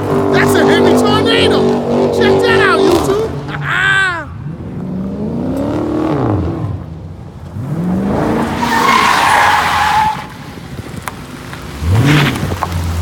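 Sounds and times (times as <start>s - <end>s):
car engine revving: 0.0s - 3.8s, 4.4s - 13.0s
tires squealing: 7.6s - 11.1s, 11.7s - 13.0s.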